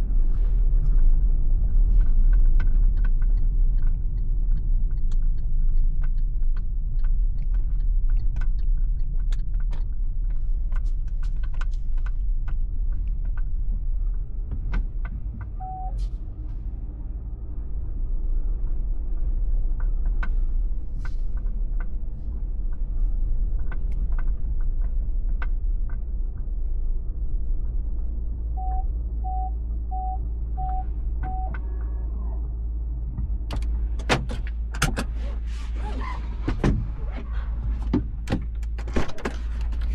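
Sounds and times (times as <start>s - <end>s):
car road rumble: 0.0s - 39.9s
low multi-tone hum: 0.0s - 39.9s
short electronic beeps: 15.6s - 16.0s, 28.6s - 31.6s.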